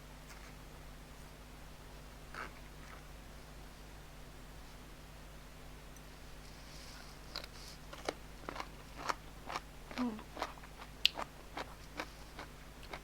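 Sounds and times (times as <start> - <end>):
chewing crunchy food: 7.3 - 13.0.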